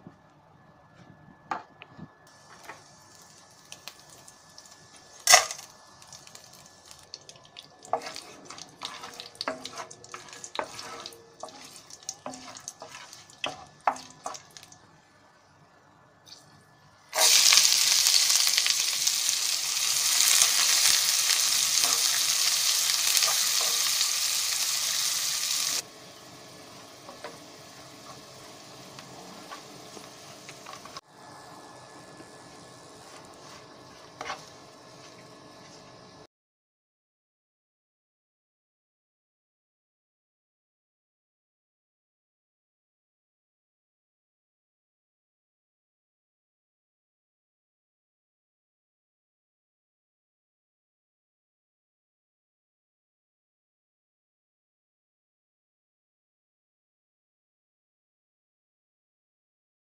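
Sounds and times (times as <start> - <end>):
onions frying sizzle: 2.3 - 15.1, 17.1 - 36.3.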